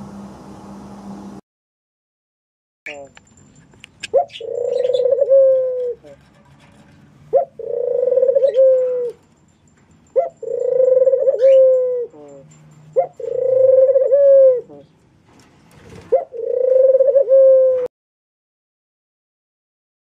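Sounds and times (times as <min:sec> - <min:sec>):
pigeon cooing: 0:04.0 - 0:06.2, 0:07.3 - 0:09.2, 0:10.1 - 0:15.0, 0:16.1 - 0:17.9.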